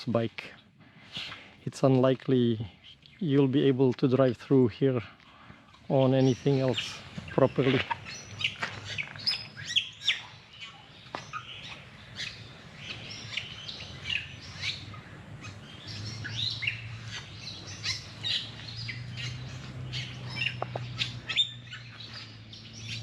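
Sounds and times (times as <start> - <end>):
starling chirping and whistling: 6.0 - 23.0.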